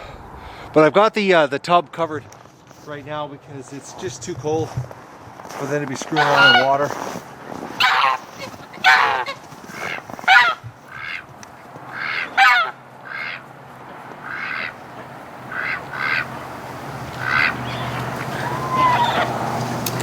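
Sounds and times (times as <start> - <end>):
geese honking: 6.1 - 6.8, 7.8 - 20.0.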